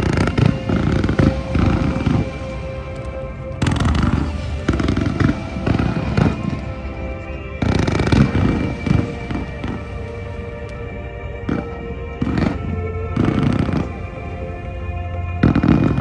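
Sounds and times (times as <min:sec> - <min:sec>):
fireworks booming: 0:00.0 - 0:07.0, 0:07.6 - 0:10.5
music with long held notes: 0:00.0 - 0:16.0.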